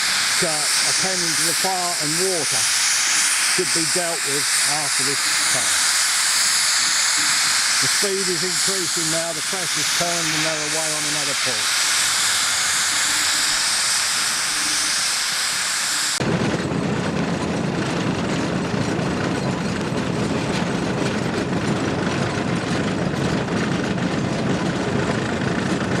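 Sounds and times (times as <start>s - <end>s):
engine clattering under load: 0.0s - 13.1s, 16.2s - 26.0s
steam engine hissing: 0.0s - 16.2s.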